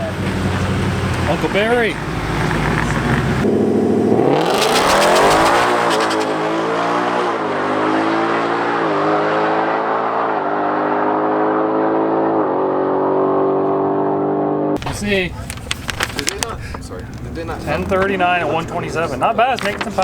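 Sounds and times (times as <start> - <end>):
engine crackle: 0.0 - 6.5, 14.8 - 20.0
drag race car accelerating: 0.0 - 14.8.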